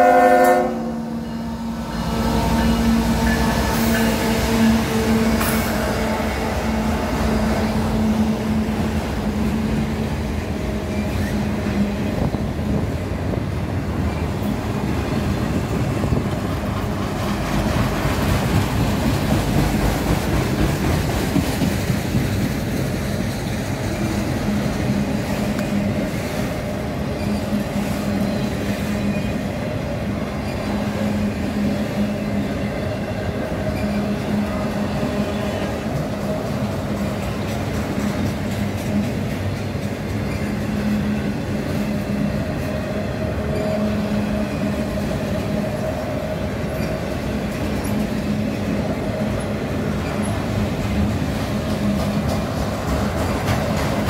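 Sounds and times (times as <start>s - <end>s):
steel wheels rattling on rails: 1.8s - 54.0s.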